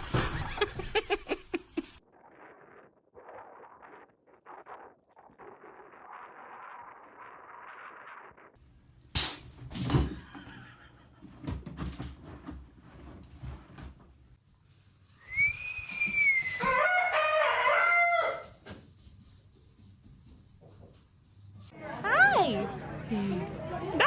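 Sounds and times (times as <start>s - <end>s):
thump: 0.0s - 1.0s
rooster crowing: 16.3s - 18.6s.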